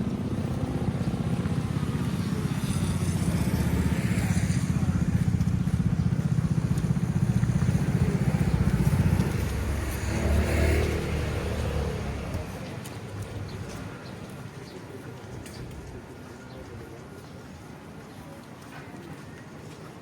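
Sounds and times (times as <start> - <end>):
motorbike engine running: 0.0 - 12.5.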